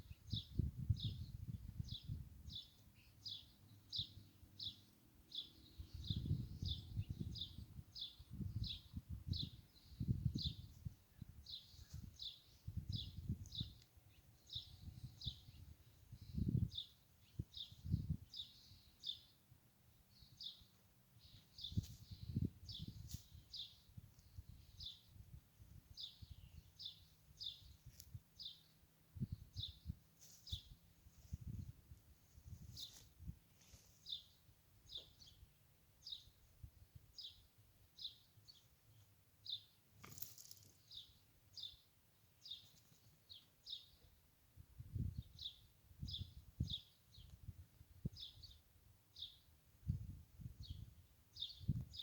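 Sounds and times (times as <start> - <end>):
songbird chirping: 0.0 - 49.6, 50.6 - 52.0
faint bird chirps: 20.0 - 25.3.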